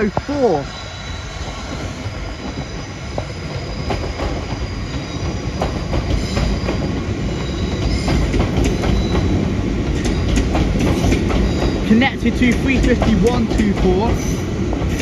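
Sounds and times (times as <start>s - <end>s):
high wheel squeal: 0.0s - 12.0s
train wheels clicking over rail joints: 1.7s - 15.0s.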